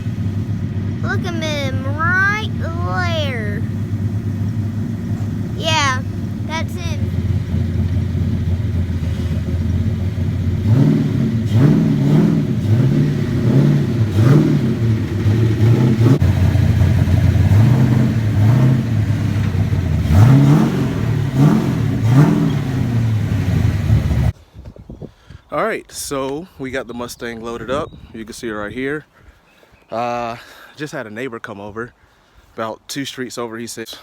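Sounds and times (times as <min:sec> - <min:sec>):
car engine idling and revving: 0:00.0 - 0:24.4.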